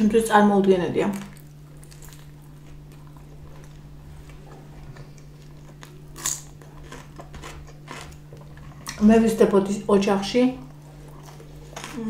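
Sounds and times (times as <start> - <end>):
low hum: 0.0 - 12.0
person chewing: 1.1 - 9.0, 10.7 - 12.0.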